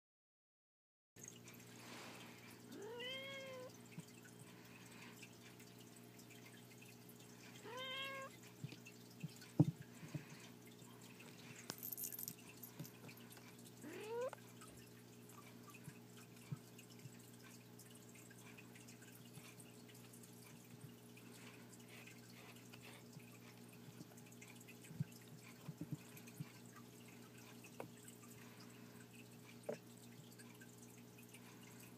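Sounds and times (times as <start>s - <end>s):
low steady hum: 1.2s - 31.9s
kittens tapping and scuffling: 23.8s - 26.8s.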